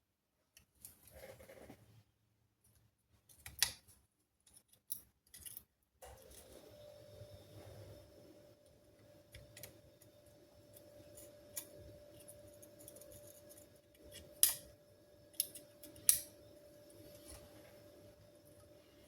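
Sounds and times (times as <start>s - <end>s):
faint steady hum: 4.9s - 19.0s.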